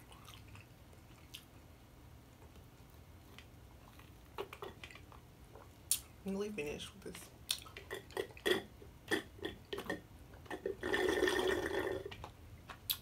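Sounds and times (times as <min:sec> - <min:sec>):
chewing soft food: 0:00.0 - 0:01.8, 0:02.4 - 0:06.1.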